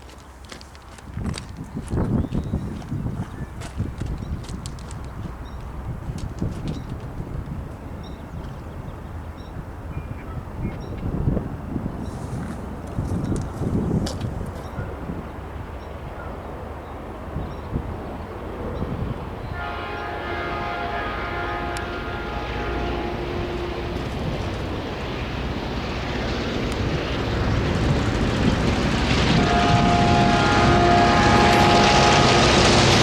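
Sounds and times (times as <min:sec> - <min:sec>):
diesel locomotives rumbling: 0:00.0 - 0:33.0
locomotive air horn: 0:19.5 - 0:24.5, 0:29.2 - 0:33.0.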